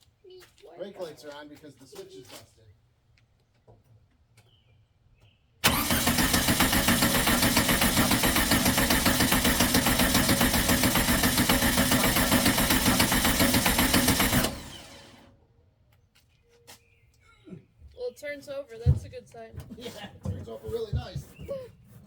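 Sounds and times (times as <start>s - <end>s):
car engine cranking on starter: 5.6s - 15.4s.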